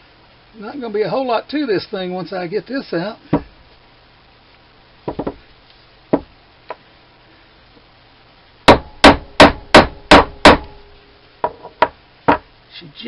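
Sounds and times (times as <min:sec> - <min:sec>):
hammer striking metal: 0:08.7 - 0:10.9.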